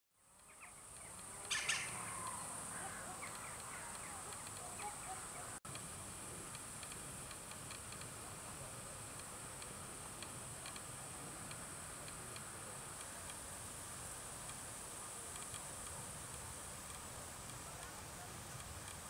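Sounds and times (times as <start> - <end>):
small birds chirping: 0.2 - 5.6
high-pitched hiss: 0.2 - 19.0
faint regular ticking: 0.3 - 19.0.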